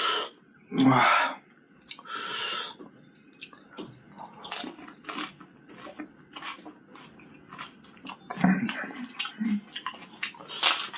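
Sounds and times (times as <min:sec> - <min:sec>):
wet chewing with crisp crunches: 0:03.3 - 0:10.9.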